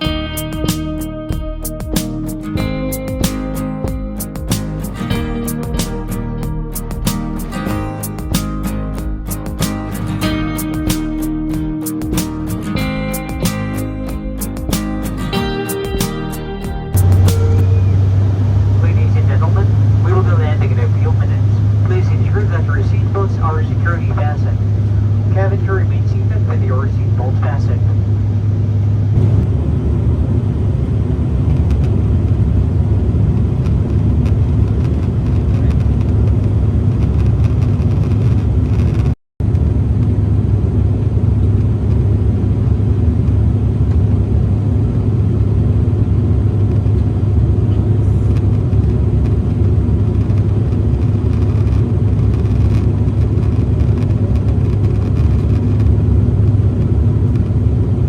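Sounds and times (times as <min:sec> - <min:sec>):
airliner cabin engine rumble: 0:17.0 - 0:58.0.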